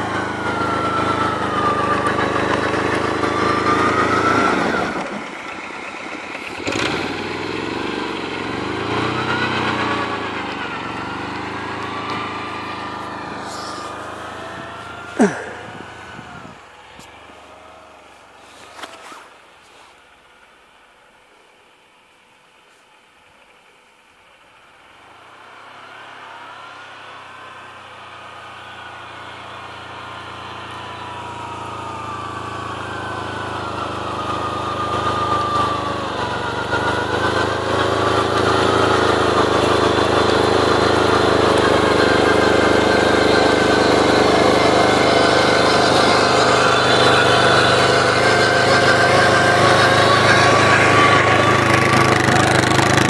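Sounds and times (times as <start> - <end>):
quad engine running: 0.0 - 19.5, 24.3 - 53.0
high wavering whine: 26.1 - 52.6.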